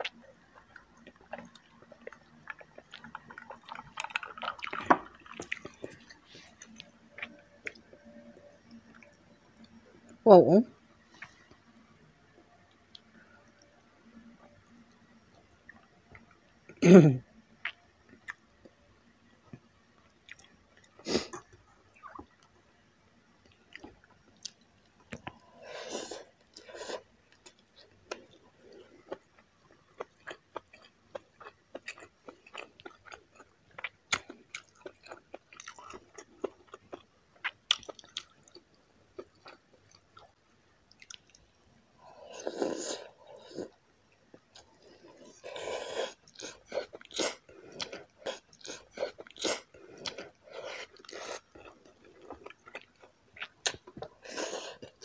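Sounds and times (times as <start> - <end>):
close chewing with mouth clicks: 0.0 - 8.1, 20.2 - 22.5, 23.4 - 41.5, 42.4 - 55.0.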